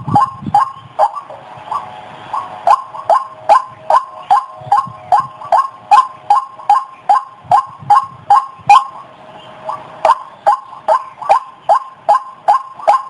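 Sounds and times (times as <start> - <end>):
bird calling harsh notes: 0.0 - 13.0.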